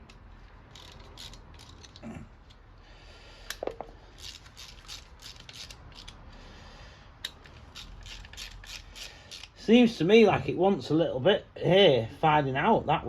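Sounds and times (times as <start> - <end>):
ratchet wrench clicking: 0.0 - 2.0, 3.4 - 6.2, 7.2 - 9.6.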